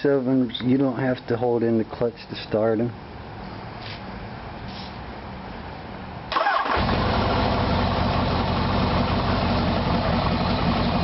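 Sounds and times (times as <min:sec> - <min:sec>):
electric starter cranking: 0:06.3 - 0:07.5
motorcycle engine idling: 0:06.9 - 0:11.0.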